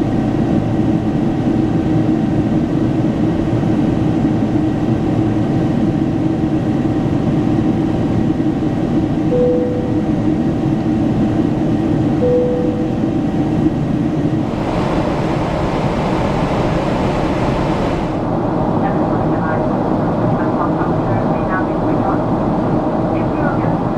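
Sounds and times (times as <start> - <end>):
airliner cabin noise: 0.1 - 23.9
short beeps: 9.3 - 10.2, 12.2 - 13.0.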